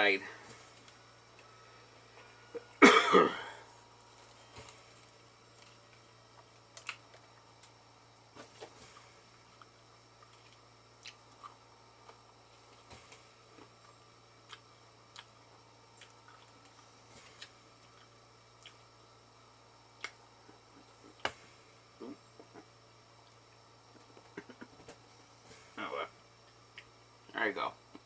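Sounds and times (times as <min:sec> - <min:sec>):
low steady hum: 0:00.0 - 0:28.0
mouth clicks and chewing: 0:14.5 - 0:15.4, 0:16.0 - 0:18.9.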